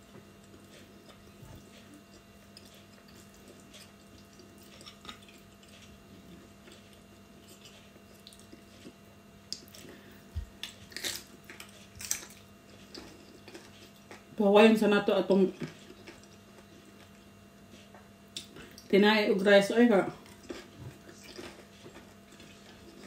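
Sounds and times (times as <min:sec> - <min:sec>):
wet chewing and mouth clicks: 0:00.4 - 0:14.3, 0:15.6 - 0:17.2
crunching cucumber: 0:06.6 - 0:14.2.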